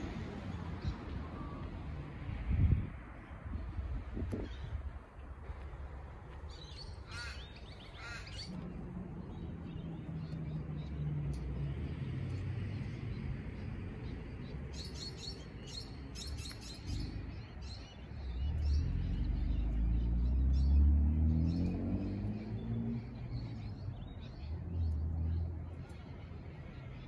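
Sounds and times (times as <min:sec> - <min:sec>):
small birds chirping: 0:00.0 - 0:27.0
low rumble: 0:07.8 - 0:14.6.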